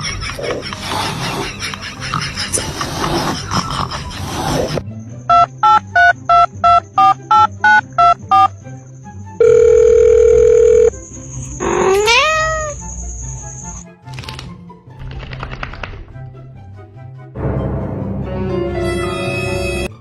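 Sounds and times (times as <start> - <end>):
telephone keypad beeps: 5.3 - 8.5, 9.4 - 10.9
long steady phone tone: 9.4 - 10.9
cat meowing: 11.6 - 12.8.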